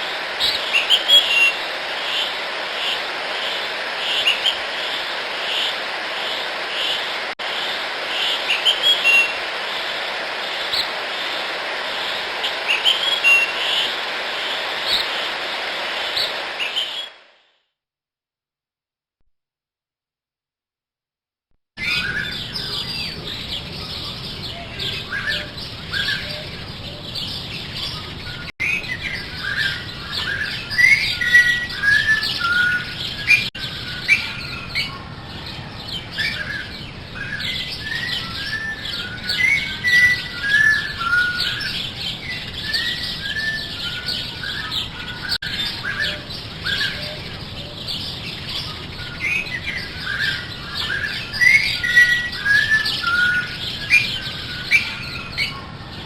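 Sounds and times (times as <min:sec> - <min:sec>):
small birds chirping: 0:00.0 - 0:17.2, 0:21.8 - 0:56.0
steady background hiss: 0:00.0 - 0:17.2.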